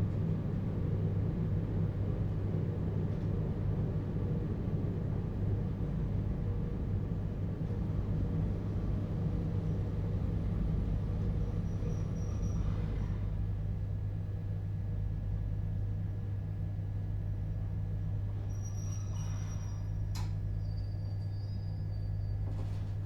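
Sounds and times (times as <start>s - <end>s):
train wheels rumbling on rail: 0.0s - 14.2s.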